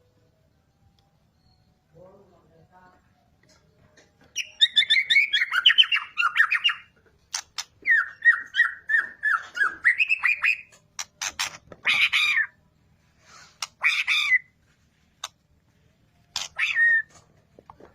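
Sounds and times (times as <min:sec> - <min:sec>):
bird singing whistled notes: 0:04.3 - 0:06.9, 0:07.8 - 0:10.7
bird harsh rasping call: 0:13.5 - 0:14.5, 0:16.3 - 0:17.1.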